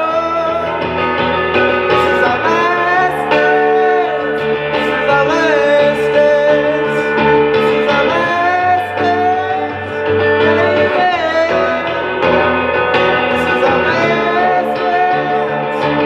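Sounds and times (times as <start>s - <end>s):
drums: 0.0s - 16.0s
electric guitar with bending notes: 0.0s - 16.0s.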